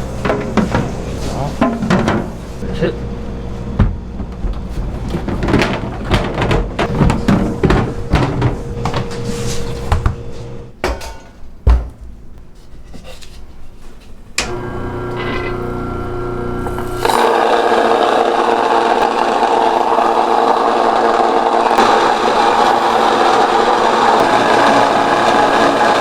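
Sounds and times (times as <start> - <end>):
kitchen knocks and clatter: 0.2 - 2.5, 3.7 - 12.2
motor humming: 6.7 - 10.7, 14.4 - 26.0.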